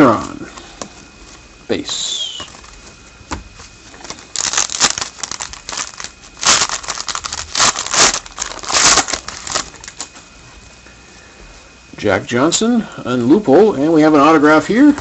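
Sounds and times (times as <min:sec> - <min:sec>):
foil wrapper crinkling and tearing: 0:03.9 - 0:10.3.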